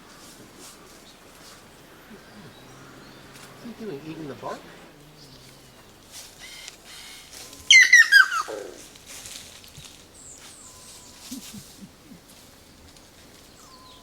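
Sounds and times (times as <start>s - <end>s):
faint bird chirps: 0.6s - 8.9s, 9.8s - 12.3s, 13.5s - 14.0s
bird call with falling notes: 5.2s - 8.9s.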